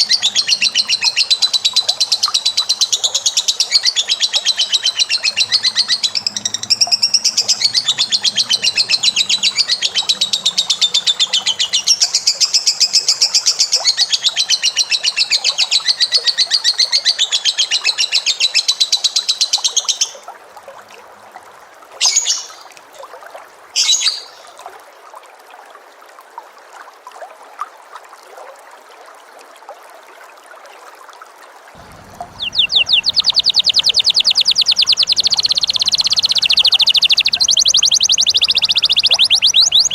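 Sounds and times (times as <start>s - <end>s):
bird chattering trill: 0.0s - 12.4s, 31.8s - 39.9s.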